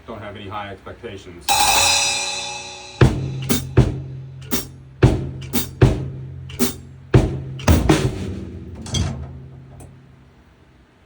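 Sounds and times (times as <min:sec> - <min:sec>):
cymbal crash: 0:01.5 - 0:04.8
snare and bass drum hits: 0:01.5 - 0:10.0.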